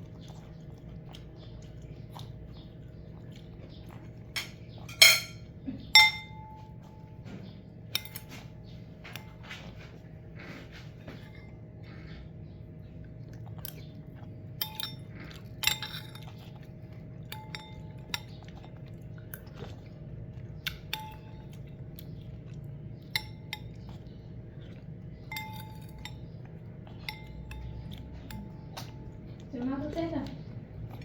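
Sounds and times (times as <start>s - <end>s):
cat chewing: 0.0s - 4.9s, 8.8s - 31.0s
clinks against bowl: 4.4s - 7.0s, 17.3s - 18.4s, 25.3s - 26.2s, 27.0s - 28.6s.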